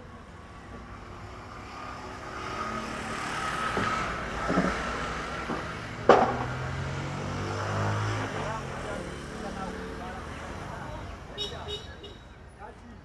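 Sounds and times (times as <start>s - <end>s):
vehicle passing with engine whine: 0.4s - 11.3s
sharp knock: 5.5s - 6.6s.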